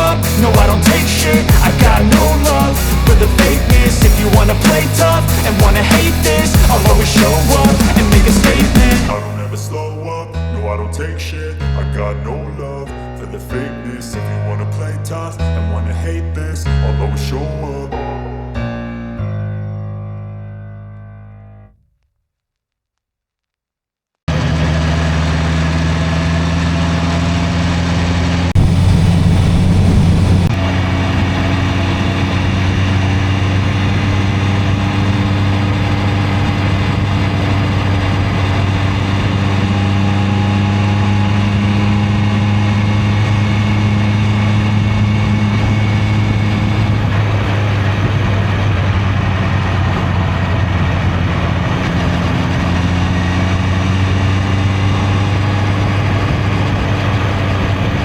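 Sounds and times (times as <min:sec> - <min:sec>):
motorcycle engine running: 0:00.0 - 0:09.2, 0:24.3 - 0:58.0
rush of noise: 0:00.0 - 0:10.0, 0:28.4 - 0:42.1.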